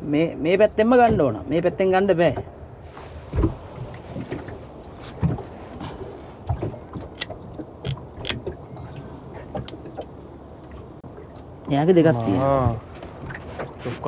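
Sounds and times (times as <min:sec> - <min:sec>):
low steady background noise: 0:00.0 - 0:14.0
knocks and clicks on wooden boat: 0:03.3 - 0:05.5, 0:06.4 - 0:08.6.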